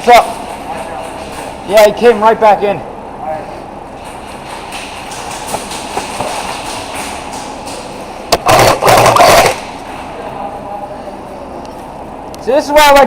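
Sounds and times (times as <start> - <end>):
airsoft gun full-auto bursts: 8.4 - 9.7.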